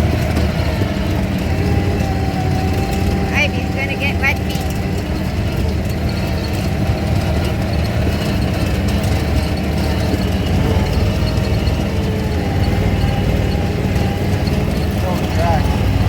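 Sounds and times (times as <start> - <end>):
off-road vehicle engine droning: 0.0 - 16.0.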